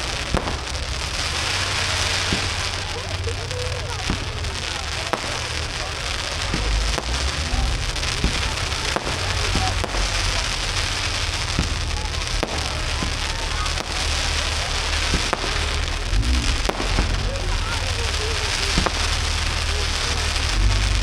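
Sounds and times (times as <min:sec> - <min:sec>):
fireworks bangs: 0:00.0 - 0:21.0
fireworks crackling: 0:00.0 - 0:21.0
low rumble: 0:00.0 - 0:21.0.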